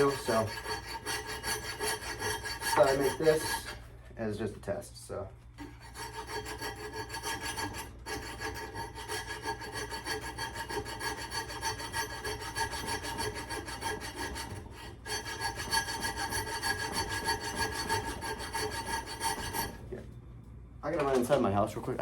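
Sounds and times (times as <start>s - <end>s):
sandpaper rubbing on metal: 0.0s - 3.8s.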